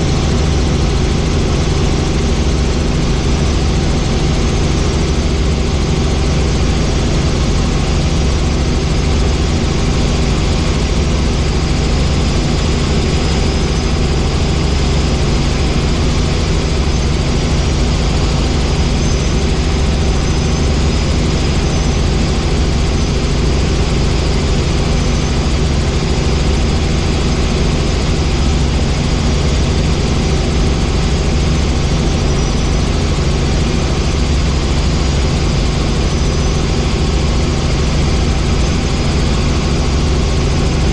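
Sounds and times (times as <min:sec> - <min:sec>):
helicopter engine and rotor noise: 0:00.0 - 0:40.9.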